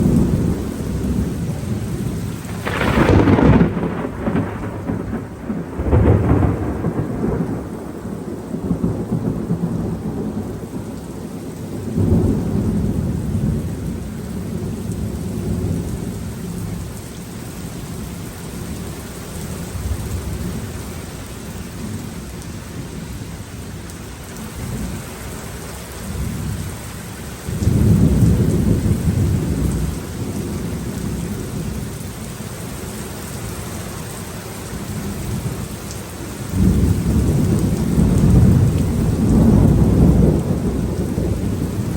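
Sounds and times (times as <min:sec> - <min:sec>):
rolling thunder rumbles: 0:00.0 - 0:17.0, 0:27.4 - 0:32.2, 0:36.4 - 0:41.9
steady rain: 0:00.0 - 0:41.9
sharp thunder crack: 0:02.5 - 0:10.3.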